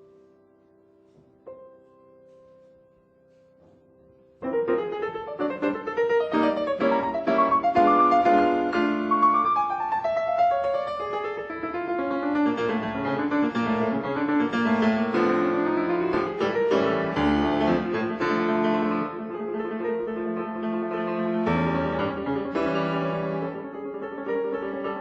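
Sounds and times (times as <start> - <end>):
solo classical piano: 0.0 - 25.0.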